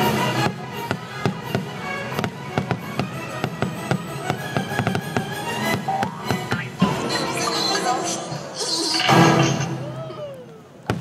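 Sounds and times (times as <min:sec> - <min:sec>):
orchestral music: 0:00.0 - 0:10.0
fireworks bangs and pops: 0:00.2 - 0:07.1, 0:10.8 - 0:11.0.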